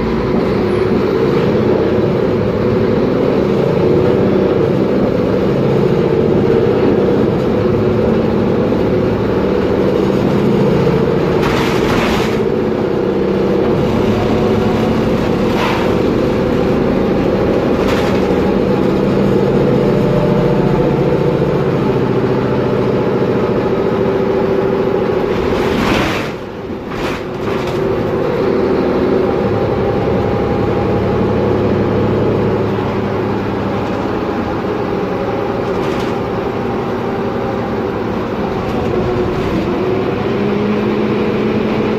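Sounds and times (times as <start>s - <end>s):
bus diesel engine drone: 0.0s - 41.9s.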